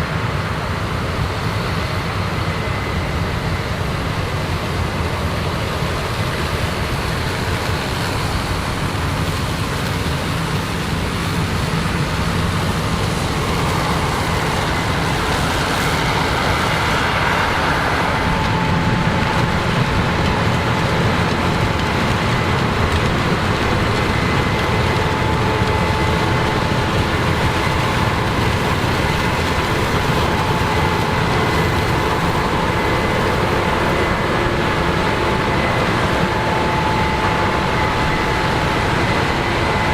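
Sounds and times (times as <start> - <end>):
low mechanical drone of machinery: 0.0 - 39.9
thin steady whine: 10.1 - 39.9.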